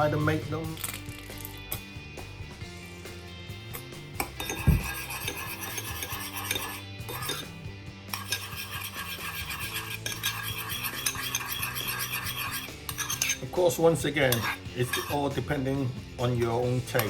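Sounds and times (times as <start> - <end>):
spoon clinking against a bowl: 4.2 - 7.5, 8.1 - 13.5, 14.2 - 15.2.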